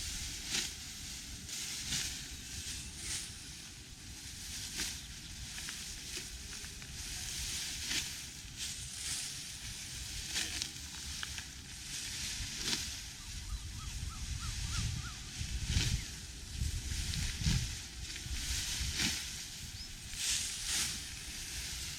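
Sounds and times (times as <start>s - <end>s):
sickles cutting rice stalks: 0.0s - 21.9s
wind rumble on microphone: 12.3s - 21.9s.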